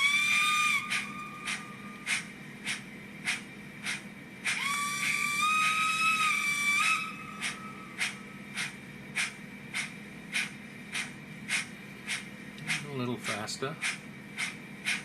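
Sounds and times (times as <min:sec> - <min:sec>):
steam whistle blast: 0:00.0 - 0:02.0, 0:04.6 - 0:07.9.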